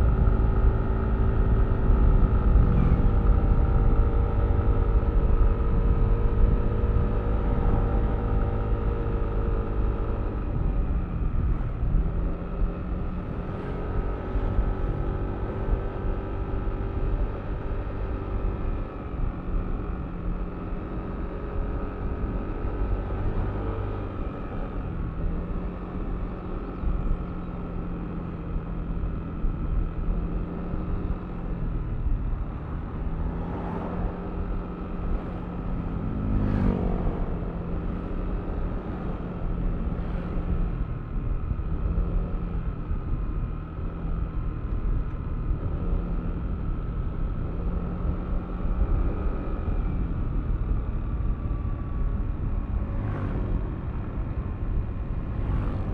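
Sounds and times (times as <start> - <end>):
road and wind noise: 0.0 - 55.9.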